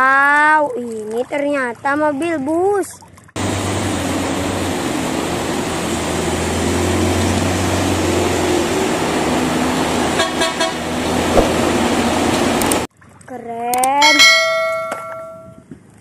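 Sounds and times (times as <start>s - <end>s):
bus engine droning: 3.4s - 12.9s
tyre hiss on wet road: 3.4s - 12.9s
horn toots: 9.9s - 11.8s.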